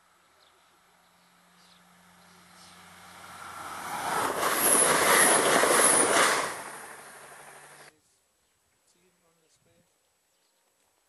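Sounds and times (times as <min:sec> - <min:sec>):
train passing at speed: 0:00.0 - 0:07.9.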